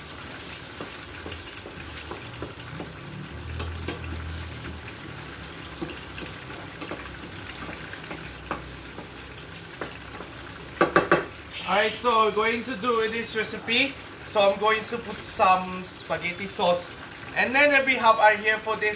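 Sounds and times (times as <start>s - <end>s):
meat sizzling in a pan: 0.0s - 18.4s
utensil tapping and scraping: 0.7s - 4.8s, 5.7s - 11.3s.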